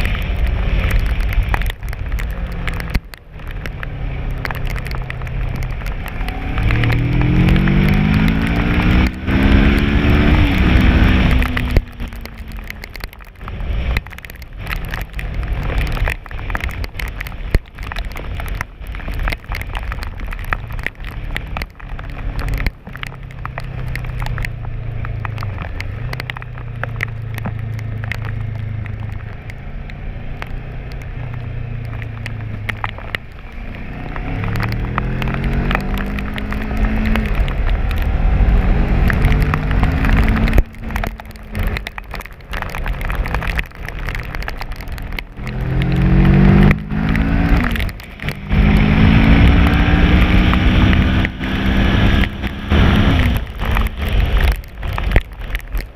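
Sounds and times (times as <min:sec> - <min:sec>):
motorcycle engine accelerating: 0:00.0 - 0:12.8, 0:21.2 - 0:41.9, 0:45.0 - 0:55.2
rain and wind on microphone: 0:00.0 - 0:55.9.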